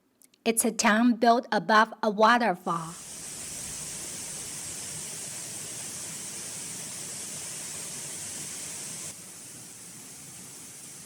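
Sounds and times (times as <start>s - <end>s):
waterfall hiss: 2.9s - 11.0s.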